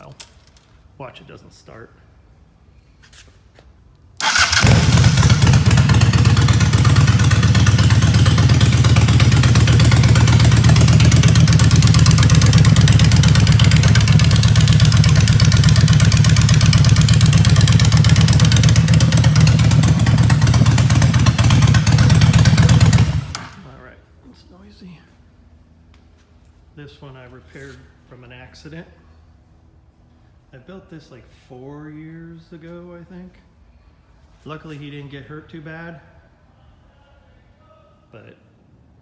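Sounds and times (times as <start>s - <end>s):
motorcycle engine starting and running: 4.2s - 23.8s.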